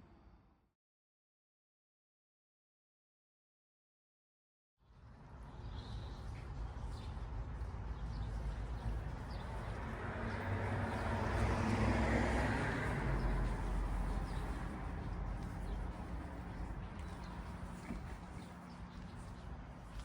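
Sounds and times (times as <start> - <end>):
car passing by: 9.4 - 16.0.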